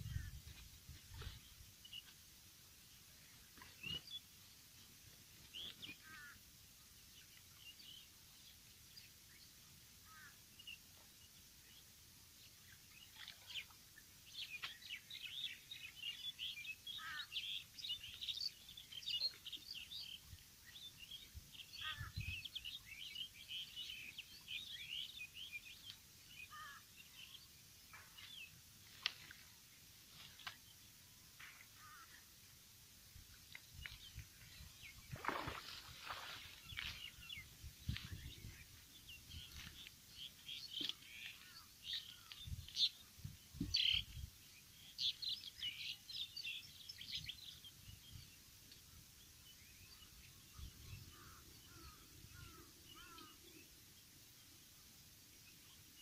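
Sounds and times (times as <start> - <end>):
small birds chirping: 7.2 - 32.3, 33.2 - 56.0
short falling bird calls: 31.4 - 32.2, 51.0 - 53.5.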